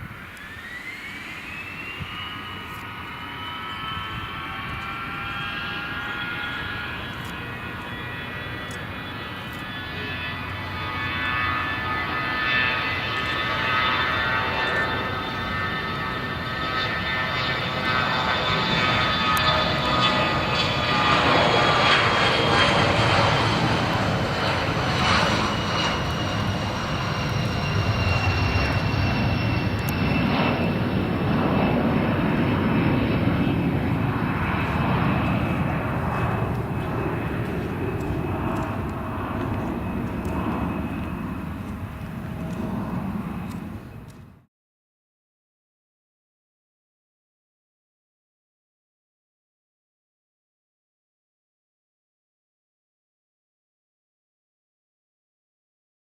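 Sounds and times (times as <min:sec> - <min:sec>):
jet passing with whining tones: 0:00.0 - 0:44.5.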